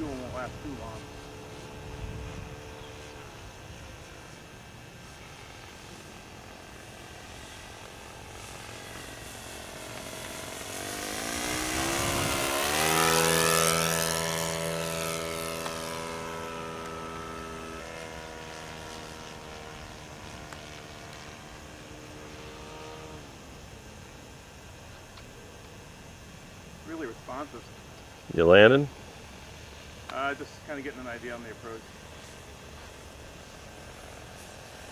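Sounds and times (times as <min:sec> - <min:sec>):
model plane engine flyby: 0:00.0 - 0:34.9.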